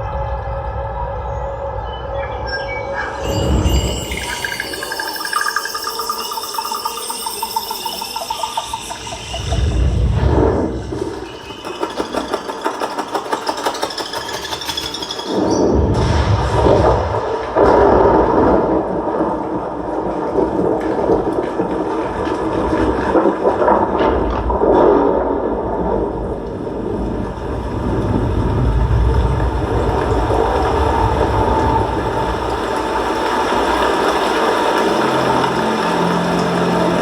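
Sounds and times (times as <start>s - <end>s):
cinematic rumble and crashes: 9.4s - 37.0s.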